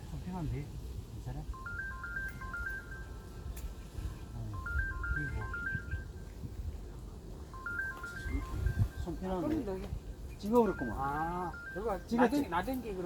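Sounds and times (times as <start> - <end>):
electronic ringtone beeps: 1.5 - 6.4, 7.5 - 9.8, 10.4 - 13.0.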